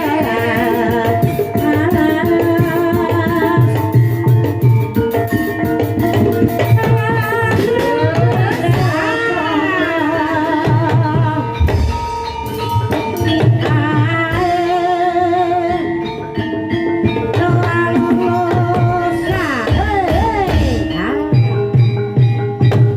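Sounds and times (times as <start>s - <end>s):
gamelan: 0.0s - 22.9s
hand drums: 0.0s - 22.9s
person singing wavering: 6.8s - 11.6s, 17.2s - 21.6s.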